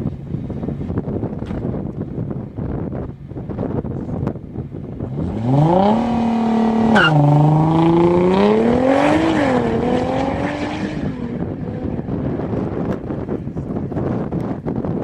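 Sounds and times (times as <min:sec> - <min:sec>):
car engine accelerating: 0:05.0 - 0:13.3.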